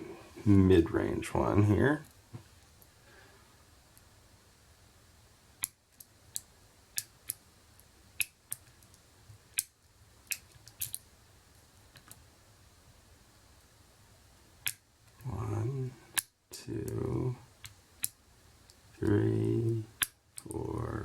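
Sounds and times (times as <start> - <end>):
metal lock picks clicking: 10.3 - 11.0.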